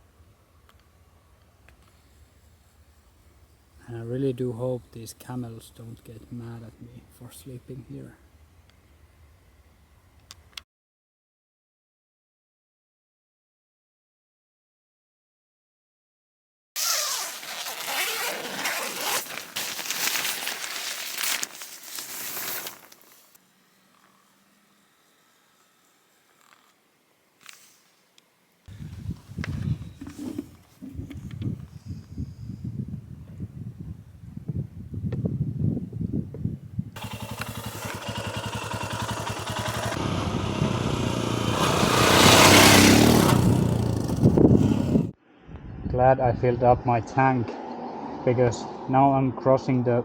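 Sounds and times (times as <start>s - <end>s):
zipper being pulled: 16.8s - 23.2s, 30.0s - 31.0s
fabric rustling: 16.8s - 23.4s
wind rush on microphone: 28.7s - 37.0s, 40.0s - 47.0s
motorcycle engine running: 37.0s - 45.1s.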